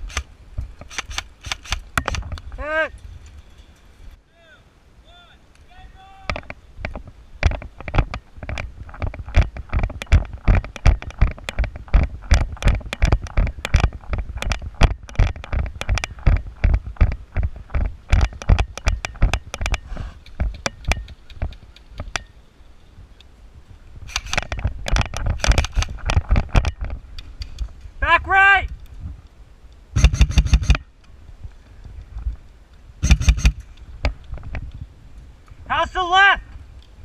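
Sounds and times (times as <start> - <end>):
gear rattling clicks and knocks: 6.3 - 22.2, 24.1 - 27.7, 30.0 - 30.8, 33.0 - 34.8.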